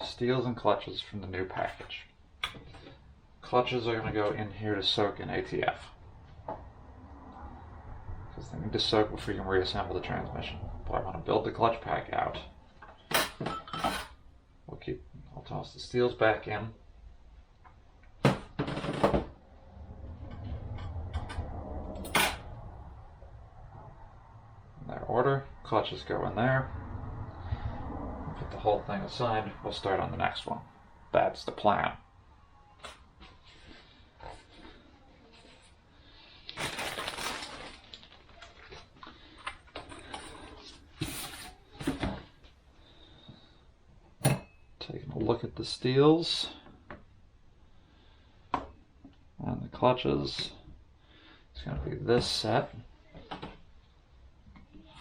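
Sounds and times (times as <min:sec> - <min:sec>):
low hum: 0:19.3 - 0:31.3.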